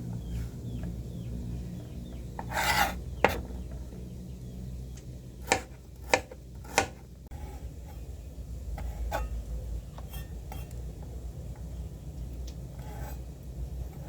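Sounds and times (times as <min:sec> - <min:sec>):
steady low hum: 0:00.0 - 0:14.0
hand rubbing and scraping: 0:02.2 - 0:03.6.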